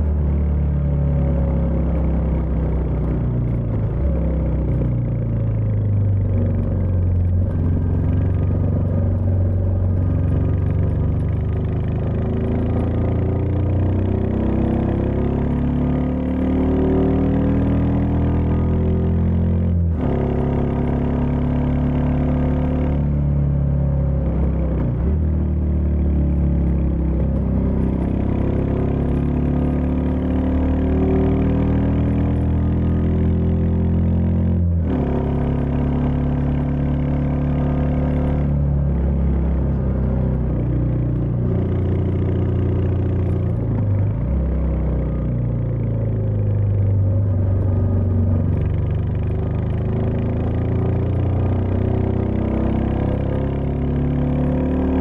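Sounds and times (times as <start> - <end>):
motorcycle engine running: 0.0 - 15.9.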